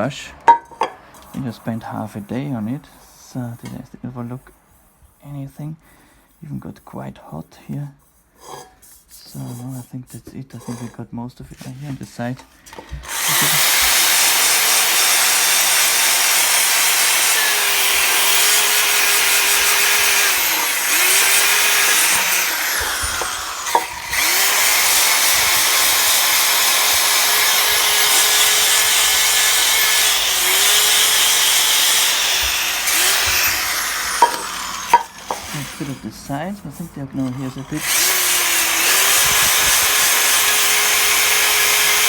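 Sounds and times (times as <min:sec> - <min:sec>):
brush scrubbing a metal pot: 0:06.3 - 0:11.0
electric drill motor whine: 0:12.8 - 0:36.0, 0:37.6 - 0:42.0.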